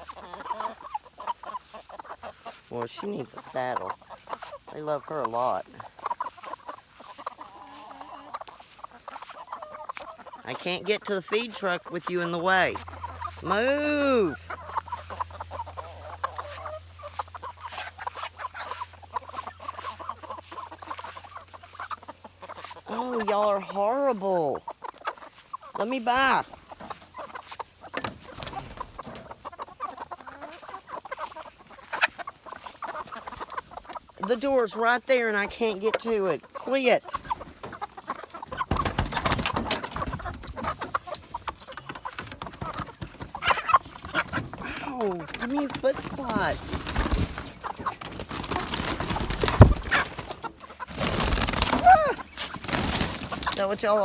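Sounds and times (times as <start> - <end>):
chickens clucking: 0.0 - 54.0
scuffling and knocking: 37.2 - 53.9.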